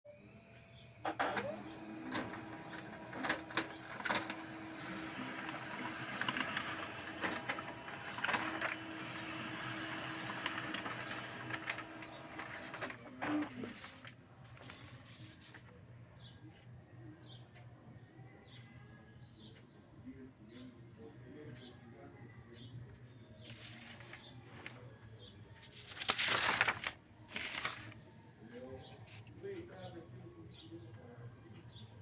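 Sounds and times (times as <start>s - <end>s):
printer mechanism whirring: 0.2s - 14.9s
sharp printer clicks: 1.0s - 14.7s.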